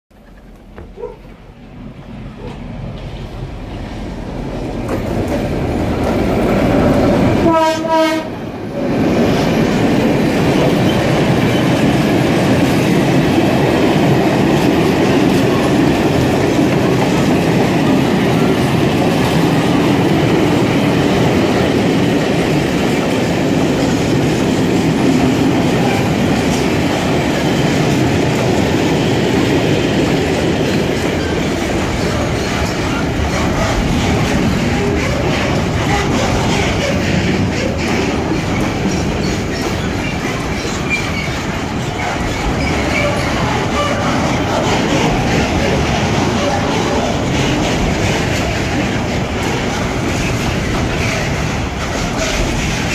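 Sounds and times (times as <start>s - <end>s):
diesel locomotive approaching: 0.1s - 52.9s
locomotive horn blast: 7.4s - 8.4s
wagon wheels on track: 29.4s - 52.9s.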